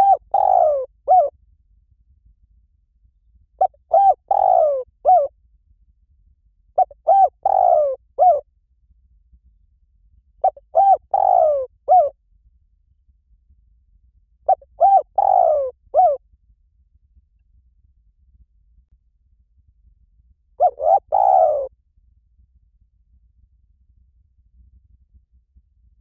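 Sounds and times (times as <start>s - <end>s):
dove cooing: 0.0s - 1.3s, 3.6s - 5.3s, 6.8s - 8.4s, 10.4s - 12.1s, 14.5s - 16.2s, 20.6s - 21.7s.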